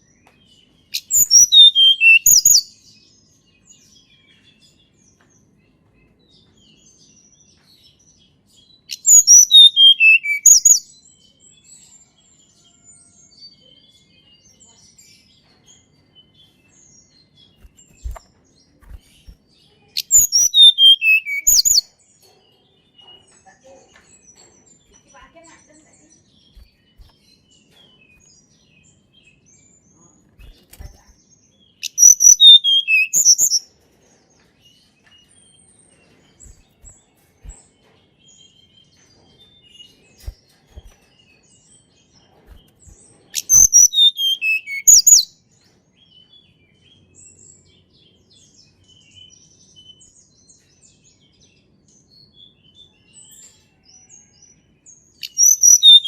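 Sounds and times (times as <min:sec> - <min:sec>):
faint bird chirps: 0:00.0 - 0:45.4, 0:46.0 - 0:56.0
bird twittering: 0:00.9 - 0:02.7, 0:08.9 - 0:10.8, 0:17.5 - 0:21.9, 0:26.5 - 0:27.2, 0:30.2 - 0:31.2, 0:31.8 - 0:33.6, 0:40.1 - 0:41.2, 0:42.4 - 0:45.3, 0:55.2 - 0:56.0.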